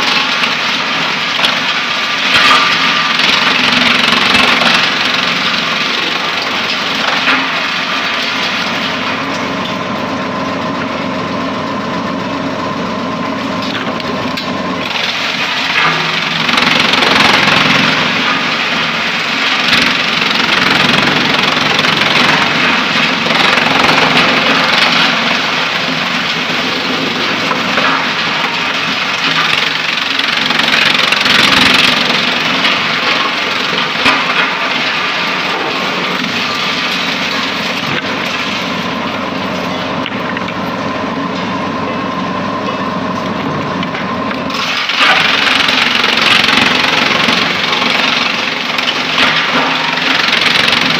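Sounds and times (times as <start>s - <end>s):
wood chipper running: 0.0s - 50.9s
wood crackling as chipped: 14.8s - 40.6s.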